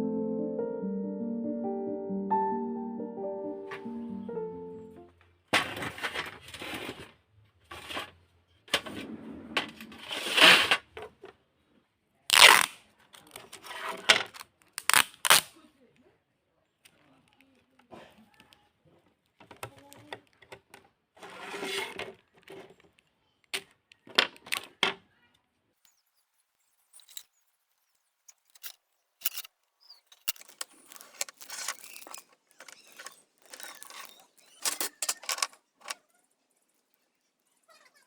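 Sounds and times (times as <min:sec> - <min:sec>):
small hard objects clicking and scraping: 0:25.9 - 0:36.1.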